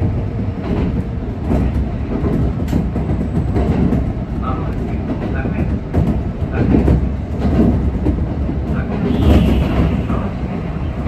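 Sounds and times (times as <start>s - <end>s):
train rumble: 0.0s - 11.0s
wheels clacking over rail joints: 0.0s - 11.0s.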